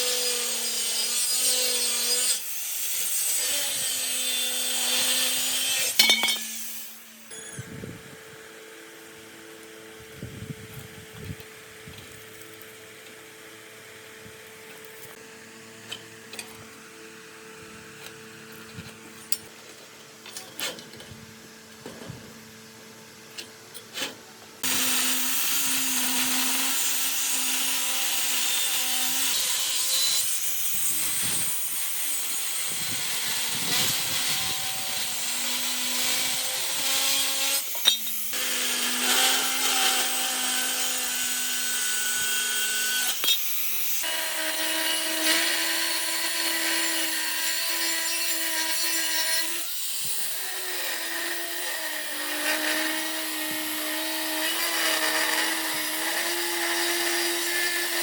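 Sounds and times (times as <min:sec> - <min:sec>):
power tool running under load: 0:24.6 - 0:58.0.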